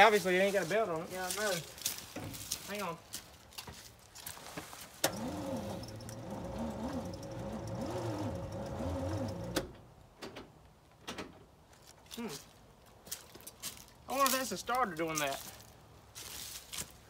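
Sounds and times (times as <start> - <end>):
starter motor cranking engine slowly: 5.0 - 9.7
starter motor click: 5.0 - 9.8.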